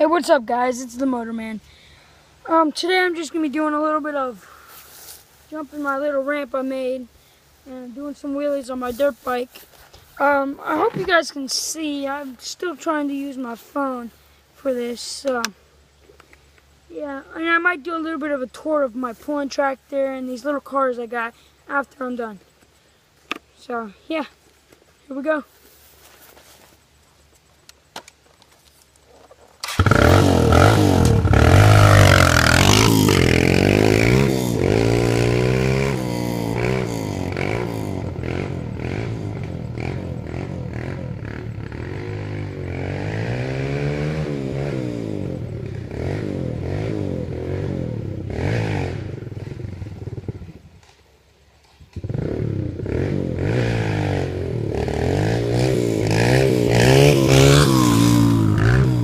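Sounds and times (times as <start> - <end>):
dirt bike engine revving: 29.6 - 50.7, 51.9 - 59.0.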